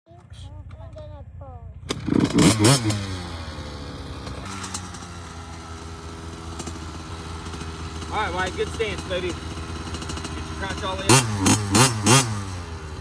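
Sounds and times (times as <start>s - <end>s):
dirt bike engine revving: 0.2s - 13.0s.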